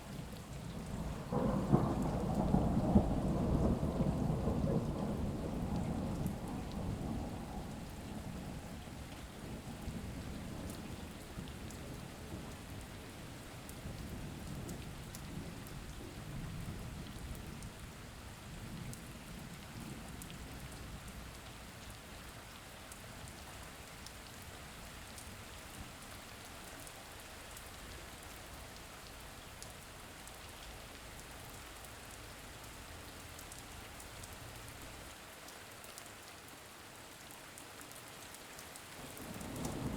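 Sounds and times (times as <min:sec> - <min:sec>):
steady rain: 0:00.0 - 0:39.9
low rolling thunder: 0:00.6 - 0:13.0, 0:39.0 - 0:39.9.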